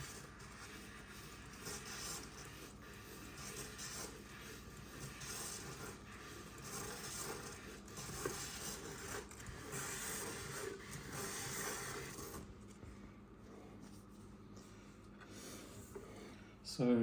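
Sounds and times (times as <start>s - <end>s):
scraper scraping icing on cake: 0.0s - 12.5s.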